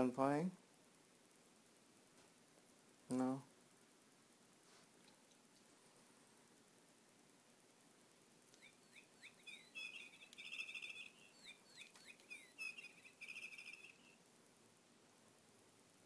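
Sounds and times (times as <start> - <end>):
faint bird chirping: 8.3 - 14.4.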